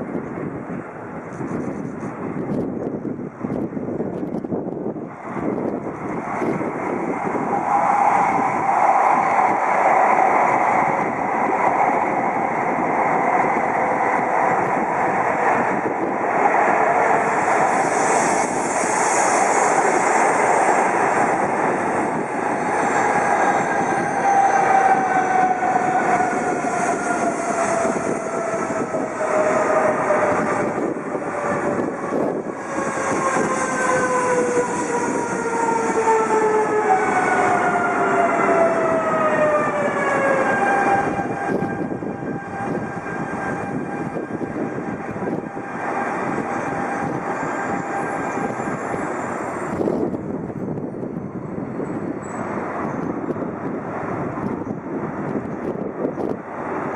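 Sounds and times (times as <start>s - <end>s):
train wheel and air rush: 0.0s - 56.9s.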